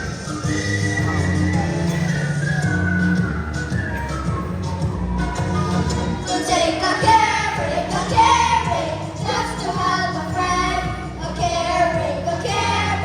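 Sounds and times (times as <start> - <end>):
music: 0.0 - 13.0
children singing: 6.2 - 13.0.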